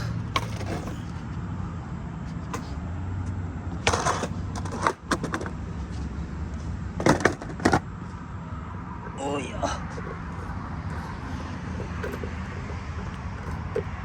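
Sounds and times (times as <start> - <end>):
skateboard wheels rumbling on concrete: 0.0 - 1.2, 3.8 - 8.0, 9.9 - 14.0
skateboard clacks and slaps: 3.8 - 5.6, 7.0 - 7.9.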